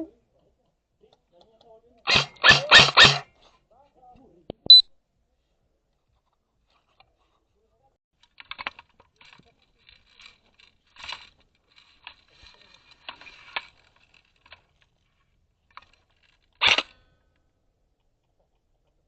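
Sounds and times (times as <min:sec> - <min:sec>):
faint rustles and clicks: 0:05.4 - 0:19.0.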